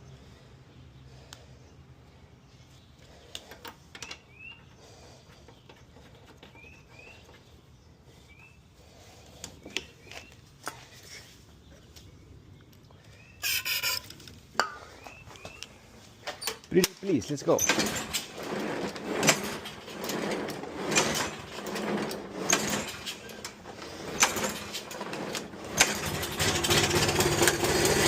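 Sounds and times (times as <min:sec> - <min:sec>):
bird chirps: 0:04.0 - 0:04.8, 0:05.5 - 0:08.7, 0:09.6 - 0:10.5, 0:11.5 - 0:14.0, 0:14.8 - 0:15.9.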